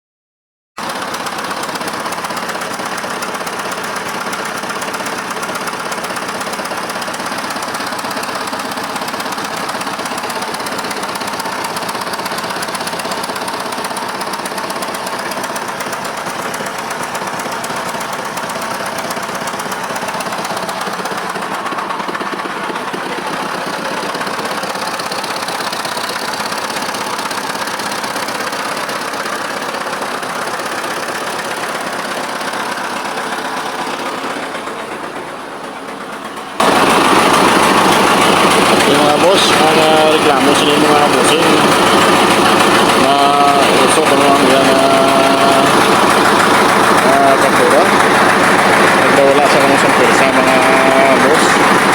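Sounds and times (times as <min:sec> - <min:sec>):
tractor diesel engine running: 0:00.8 - 0:51.9.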